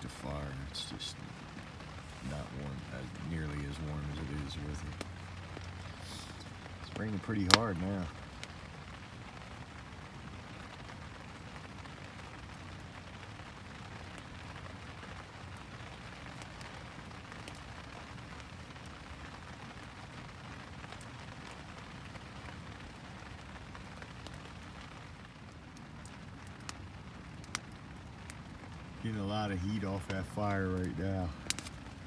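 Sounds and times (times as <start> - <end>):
heavy rain on plastic sheet: 0.0 - 32.0
sharp rain ticks: 0.0 - 32.0.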